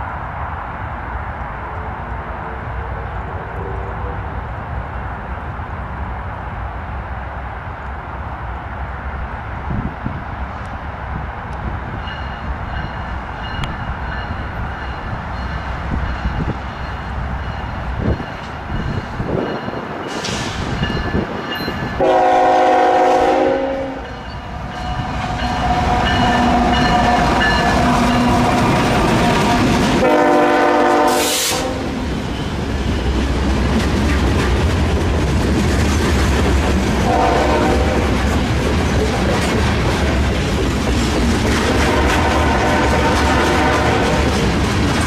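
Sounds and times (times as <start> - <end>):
train air horn blasts: 22.0 - 24.2, 29.2 - 32.0, 37.0 - 38.1, 41.8 - 44.2
freight cars rumbling: 23.7 - 45.0.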